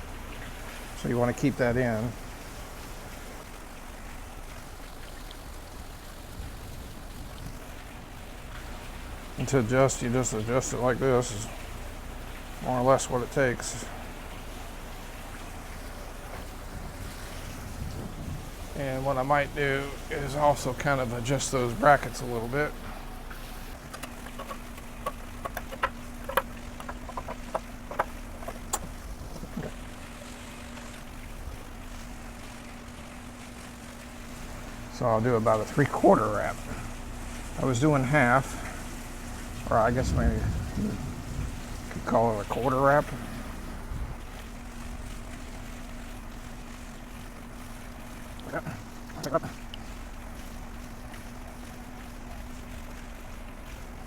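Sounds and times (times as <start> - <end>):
steady low hum: 0.0 - 54.0
hands clicking and tapping metal: 23.9 - 28.9.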